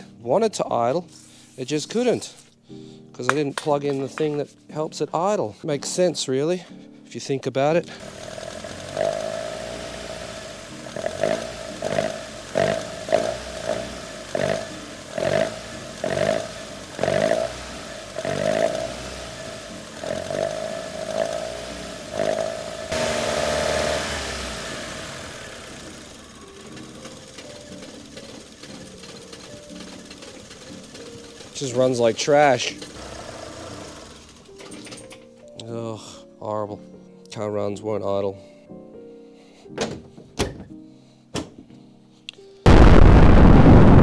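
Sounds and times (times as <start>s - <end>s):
car engine revving: 8.0s - 34.5s.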